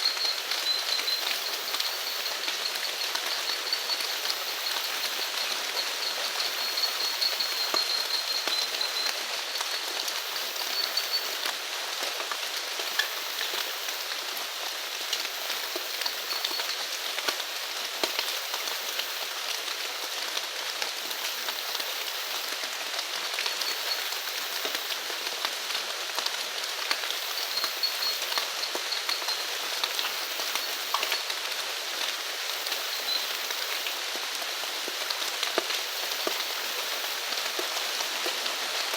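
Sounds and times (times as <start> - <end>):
rain falling on surfaces: 0.0 - 38.9.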